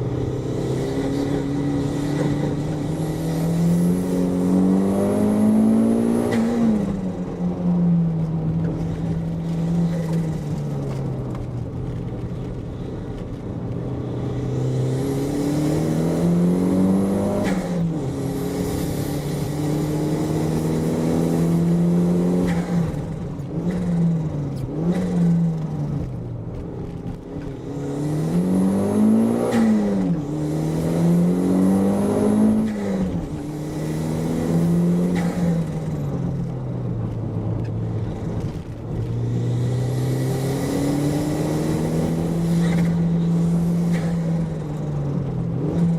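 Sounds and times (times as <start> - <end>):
car engine revving hard: 0.2 - 7.1, 14.4 - 24.1, 27.6 - 35.8, 39.0 - 44.7.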